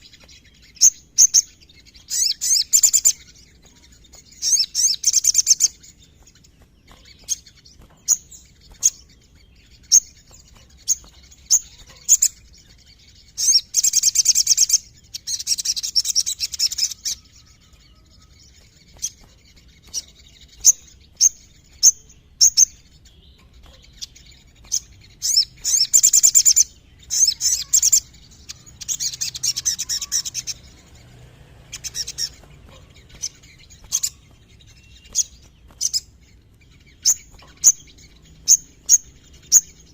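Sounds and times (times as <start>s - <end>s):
songbird sharp chirps: 0.0s - 39.9s
songbird rapid trilling: 23.6s - 39.9s.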